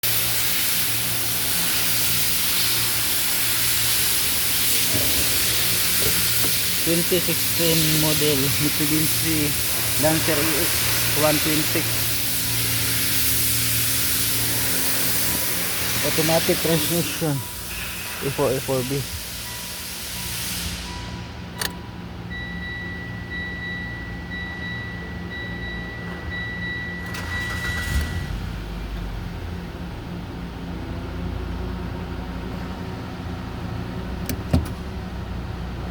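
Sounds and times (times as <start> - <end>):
car engine idling: 0.1 - 20.2, 27.1 - 35.9
high warning beep: 17.0 - 17.9, 19.4 - 28.4
click: 21.6 - 21.8.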